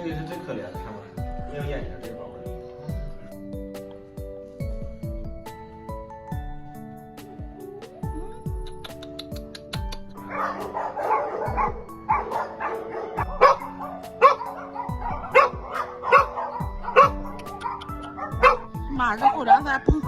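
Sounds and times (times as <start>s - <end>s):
dogs barking: 10.1s - 20.0s.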